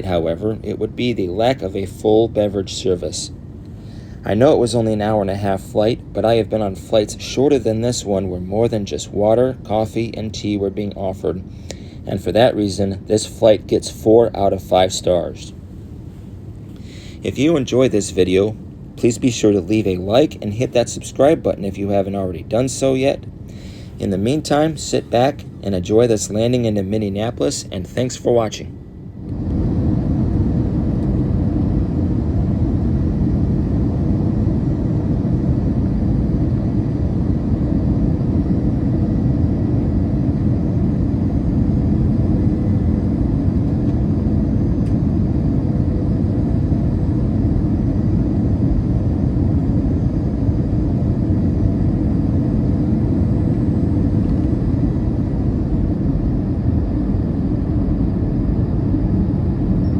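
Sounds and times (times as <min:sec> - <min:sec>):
airplane cabin rumble: 0:00.0 - 0:59.9
faint hum: 0:00.0 - 0:59.9.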